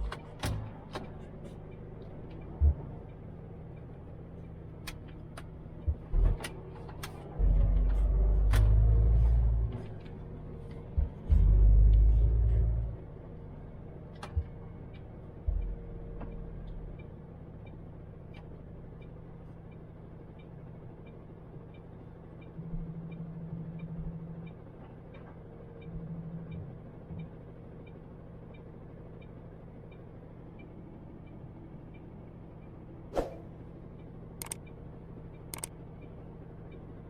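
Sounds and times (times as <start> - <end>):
diesel truck engine running: 0.0 - 37.0
faint regular ticking: 33.8 - 37.0.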